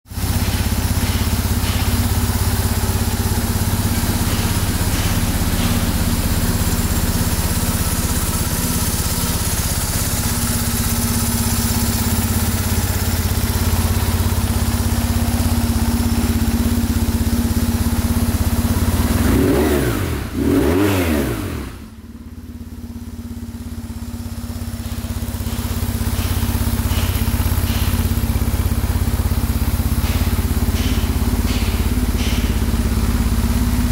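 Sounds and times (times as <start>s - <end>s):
motorcycle engine idling: 0.1s - 33.9s
engine revving: 18.4s - 22.0s.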